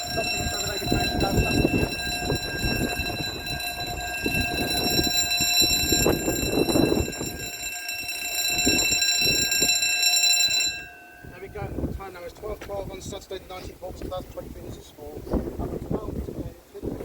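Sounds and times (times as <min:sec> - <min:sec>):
level crossing warning tone: 0:00.0 - 0:11.9.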